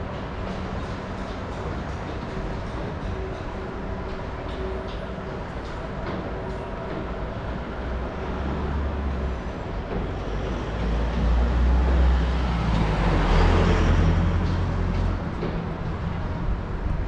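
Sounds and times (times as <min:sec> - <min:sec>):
city traffic rumble: 0:00.0 - 0:17.0
large vehicle passing: 0:10.6 - 0:16.4.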